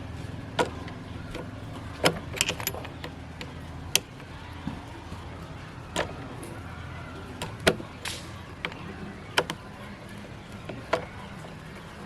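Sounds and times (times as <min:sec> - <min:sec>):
small metal parts clicking: 0:00.6 - 0:04.4.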